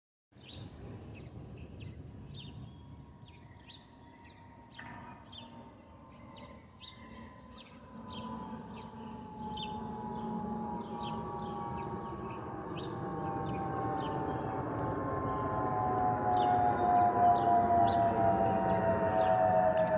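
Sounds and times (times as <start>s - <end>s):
airplane wing whistling tone: 2.4s - 19.9s
low rumble: 7.6s - 19.9s.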